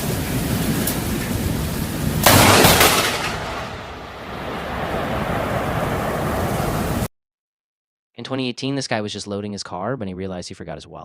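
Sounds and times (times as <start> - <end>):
thunderclap: 0.0 - 7.1.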